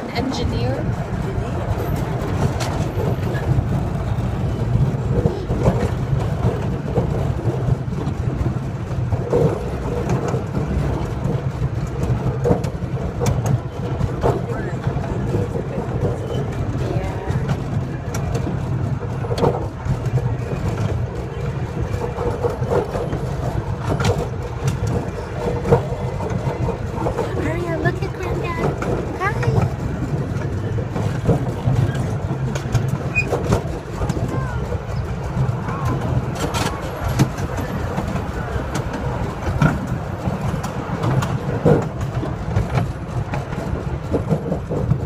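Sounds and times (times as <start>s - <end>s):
miniature train engine: 0.0s - 45.0s
train rolling rumble: 0.0s - 45.0s.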